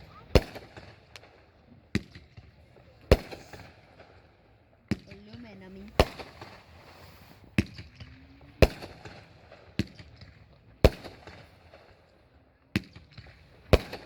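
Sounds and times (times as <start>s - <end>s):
firework bangs: 0.0s - 12.2s, 12.8s - 14.0s
faint crackling: 5.1s - 7.6s.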